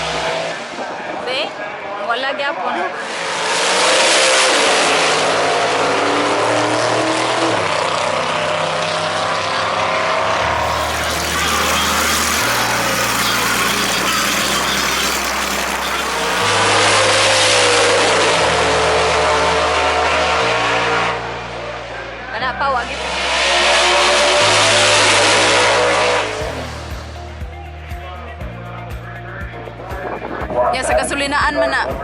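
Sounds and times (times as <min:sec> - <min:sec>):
drag racing car engines: 0:00.0 - 0:02.0, 0:02.6 - 0:32.0.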